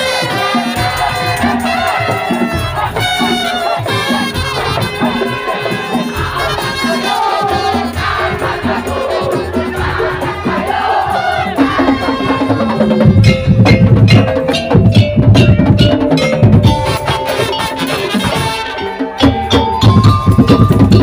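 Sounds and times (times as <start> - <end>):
drums with fast driving beat: 0.0 - 21.0
held melodic notes: 13.0 - 21.0.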